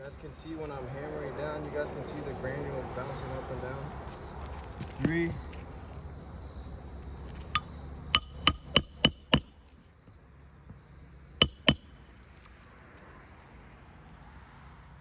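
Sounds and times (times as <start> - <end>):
hammer striking roofing nail: 7.4 - 9.6, 11.4 - 12.0.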